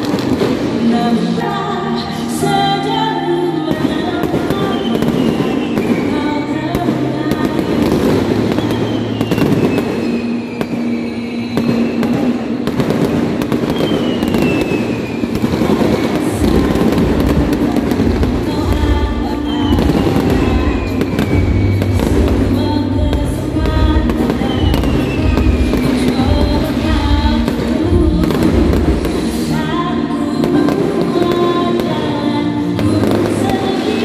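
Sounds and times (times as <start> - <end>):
fireworks booming: 0.0 - 1.5, 3.7 - 34.0
fireworks crackling and popping: 0.0 - 2.7, 3.7 - 34.0
background music: 0.0 - 34.0
fireworks whistling: 3.7 - 34.0.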